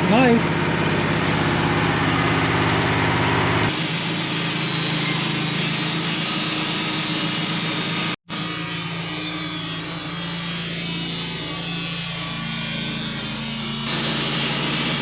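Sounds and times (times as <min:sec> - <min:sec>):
sawmill engine drone: 0:00.0 - 0:15.0
saw blade cutting log: 0:03.7 - 0:15.0.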